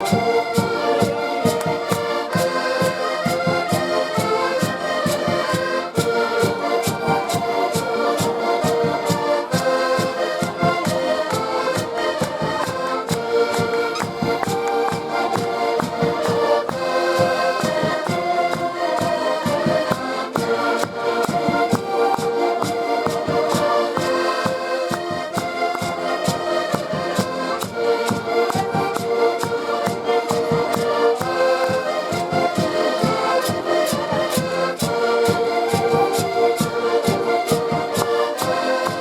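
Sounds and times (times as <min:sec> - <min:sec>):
accordion folk music: 0:00.0 - 0:39.0.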